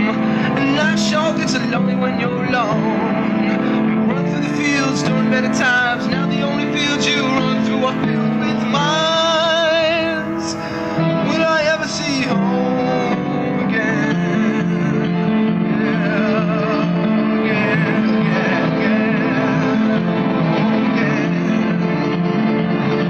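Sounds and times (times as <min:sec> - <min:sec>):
guitar: 0:00.0 - 0:23.0
person singing with vibrato: 0:00.0 - 0:23.0.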